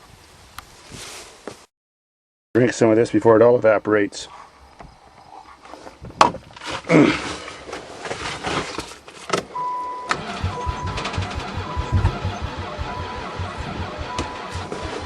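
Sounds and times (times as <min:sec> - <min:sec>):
dashboard warning chime beeping: 0:09.6 - 0:15.0
starter cranking engine: 0:10.1 - 0:15.0.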